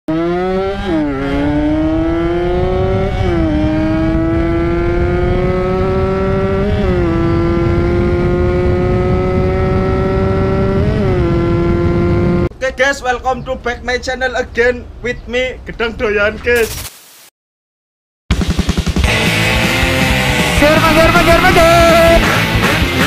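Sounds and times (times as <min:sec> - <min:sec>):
two-stroke motorcycle accelerating: 0:00.1 - 0:12.5, 0:18.3 - 0:23.0.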